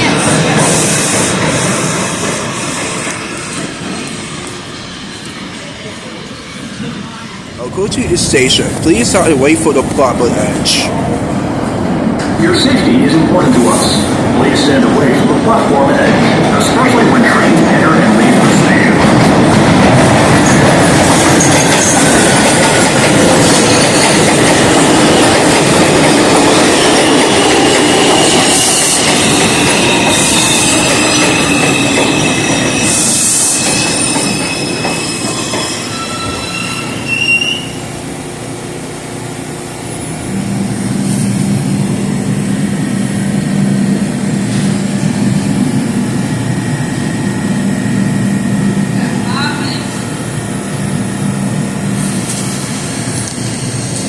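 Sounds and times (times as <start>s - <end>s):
subway train running: 0.0s - 54.0s
wheels squealing on rails: 20.4s - 37.9s, 52.0s - 54.0s.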